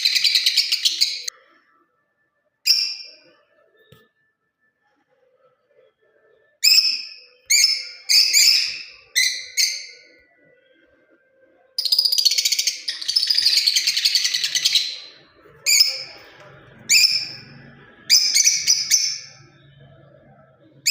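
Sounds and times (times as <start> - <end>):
lovebird chirping and chattering: 0.0 - 1.3, 6.6 - 10.1, 11.8 - 16.2, 16.9 - 19.5.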